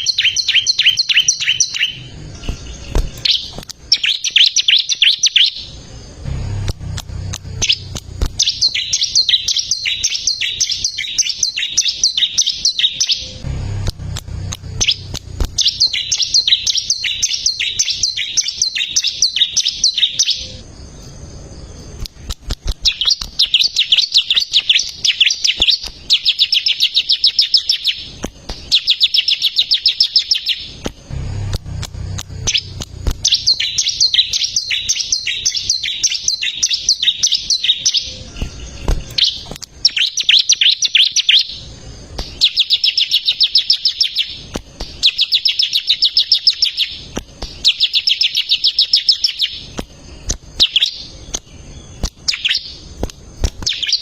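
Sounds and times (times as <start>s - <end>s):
bird singing rapid high chirps: 0.0s - 54.0s
low rumble: 5.7s - 8.8s, 13.3s - 15.9s, 30.8s - 34.3s.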